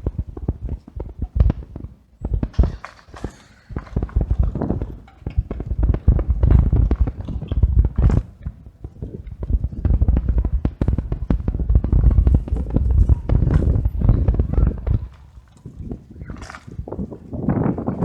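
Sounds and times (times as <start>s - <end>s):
camera rattling and knocking: 0.0s - 15.2s
wind rumble on microphone: 0.0s - 18.0s.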